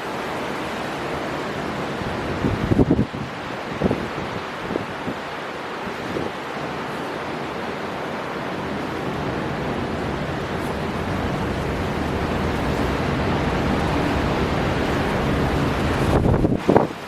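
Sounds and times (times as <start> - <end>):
sea surf: 0.0 - 17.0
strong wind blowing: 1.9 - 5.2, 9.5 - 17.0.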